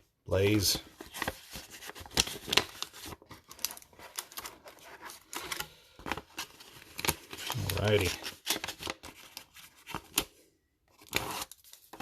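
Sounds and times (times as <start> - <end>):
foil packs crinkling: 1.0 - 10.1.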